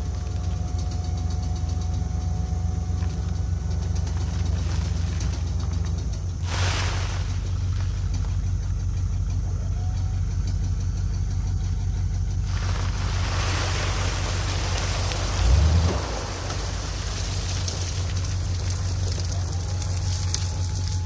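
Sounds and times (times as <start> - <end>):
engine idling: 0.0 - 21.0
broad rushing hiss: 6.4 - 8.0, 12.5 - 20.6.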